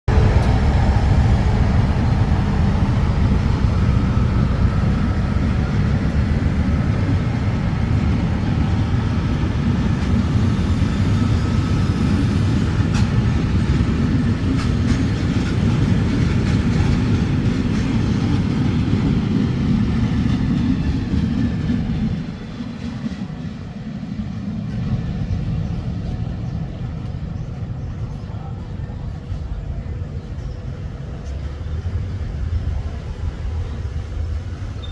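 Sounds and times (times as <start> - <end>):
train rumbling on rails: 0.0 - 34.9.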